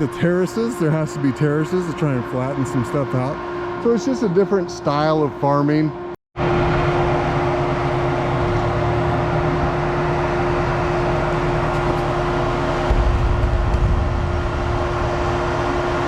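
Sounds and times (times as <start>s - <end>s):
farm machinery humming: 0.0s - 16.0s.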